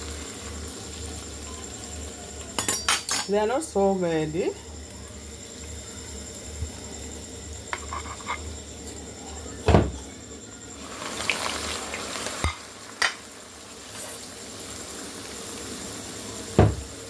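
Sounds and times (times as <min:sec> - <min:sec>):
bread sizzling in hot oil: 0:00.0 - 0:17.0
loud dull thump: 0:16.6 - 0:16.9.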